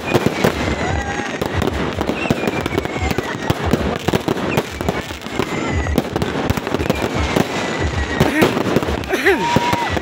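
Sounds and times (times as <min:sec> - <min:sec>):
falling firework whistles: 0:00.0 - 0:10.0
fireworks bangs and crackling: 0:00.0 - 0:10.0.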